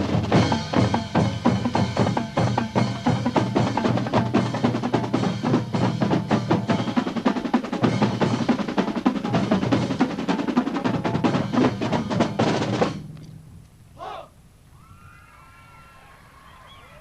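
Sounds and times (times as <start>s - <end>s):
marching band music: 0.0s - 13.2s
rapid drum strokes and rolls: 0.0s - 13.2s.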